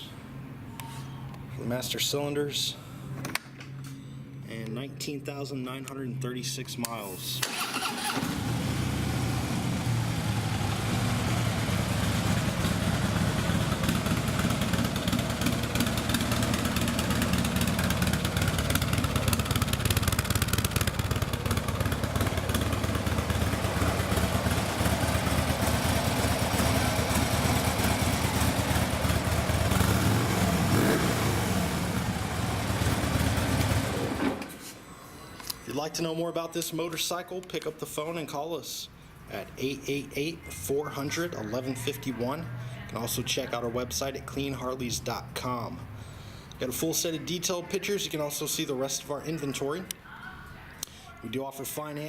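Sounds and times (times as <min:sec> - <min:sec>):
motorcycle engine idling: 0:08.0 - 0:34.2.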